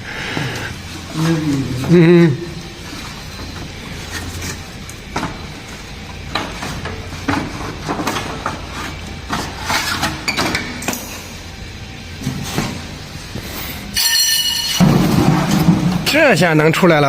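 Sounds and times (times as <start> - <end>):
tools and metal parts clinking: 13.9 - 15.8.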